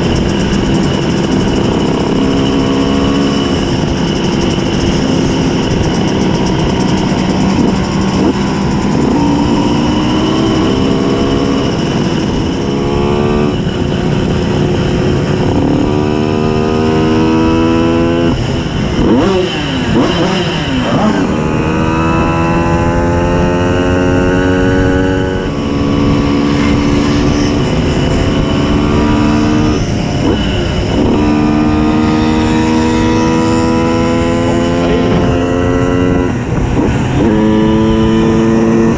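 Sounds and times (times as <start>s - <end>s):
second engine passing: 0.0s - 38.9s
two-stroke moped engine: 0.0s - 38.9s.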